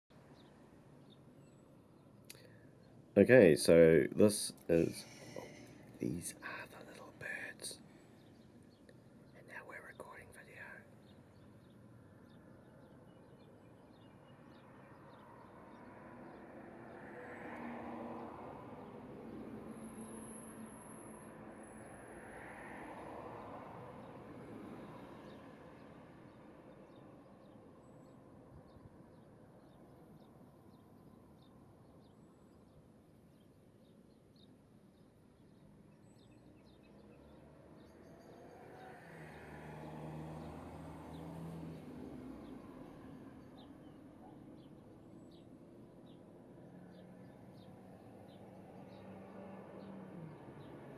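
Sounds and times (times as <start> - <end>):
vehicle passing by: 37.0 - 43.9, 46.4 - 50.9.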